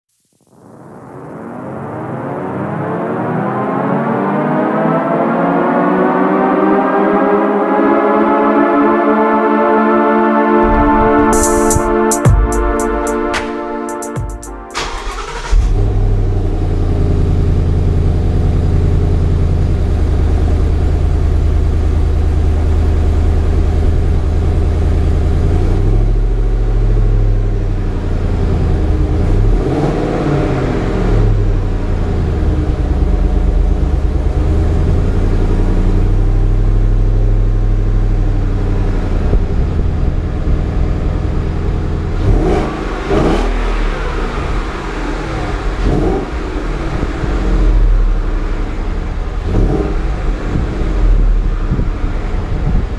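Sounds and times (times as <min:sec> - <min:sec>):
car engine idling and revving: 0:14.8 - 0:52.9.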